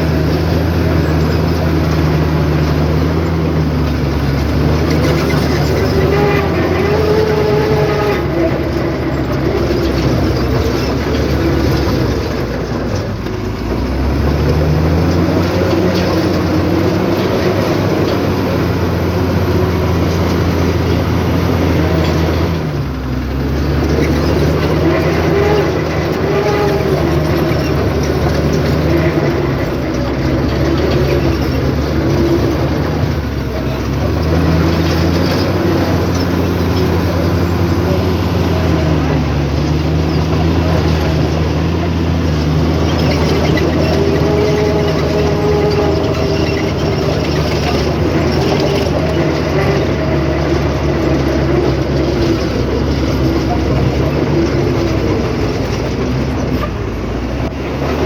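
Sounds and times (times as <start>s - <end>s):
heavy diesel engine revving: 0.0s - 58.0s.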